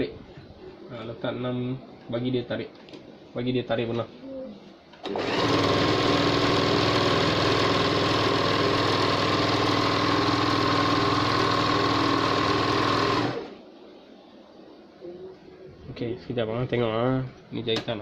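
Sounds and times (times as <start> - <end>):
overlock sewing machine running: 5.0 - 13.6.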